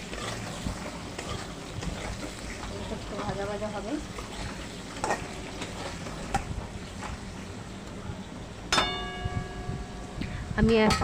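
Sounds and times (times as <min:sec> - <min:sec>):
potatoes sizzling in oil: 0:00.0 - 0:07.8.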